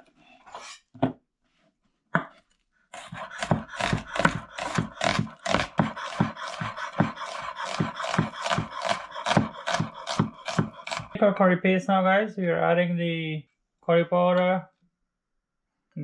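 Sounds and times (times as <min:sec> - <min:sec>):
rhythmic scraping strokes on food: 0:03.0 - 0:11.2.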